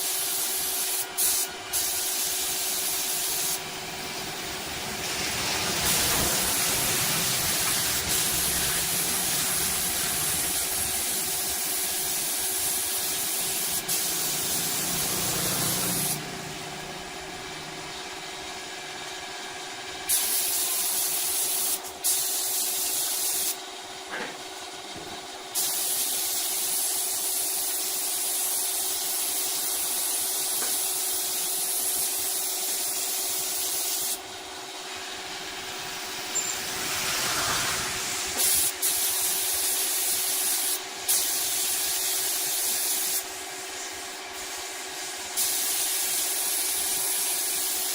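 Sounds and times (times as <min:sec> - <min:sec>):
loud hiss of air: 0:00.0 - 0:18.4, 0:19.0 - 0:23.6, 0:25.5 - 0:47.9
machine humming: 0:03.6 - 0:11.4, 0:14.0 - 0:18.9.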